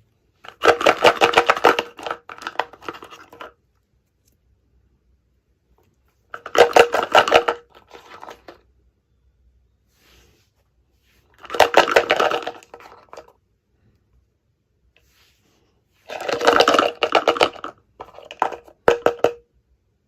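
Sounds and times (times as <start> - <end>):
toy packaging rustling and clicking: 0.4 - 4.4, 5.8 - 8.8, 11.3 - 13.4, 16.0 - 19.4.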